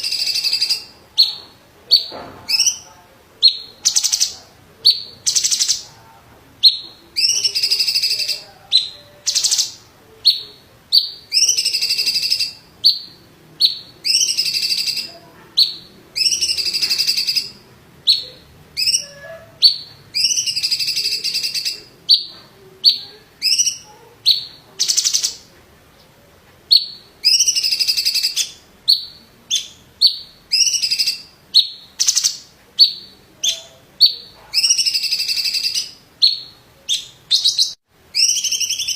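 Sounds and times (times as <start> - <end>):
bird singing chips and buzzy phrases: 6.6 - 25.5, 26.7 - 38.9.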